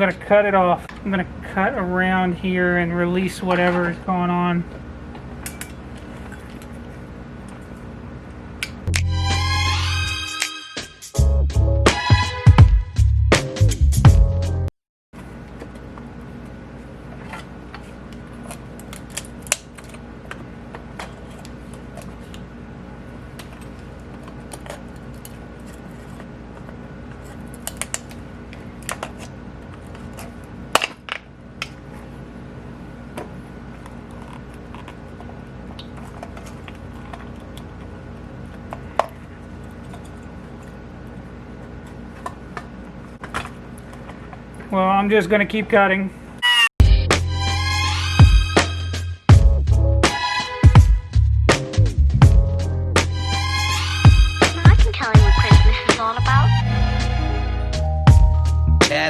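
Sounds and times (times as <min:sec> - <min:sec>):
steady low hum: 0:50.7 - 0:59.0.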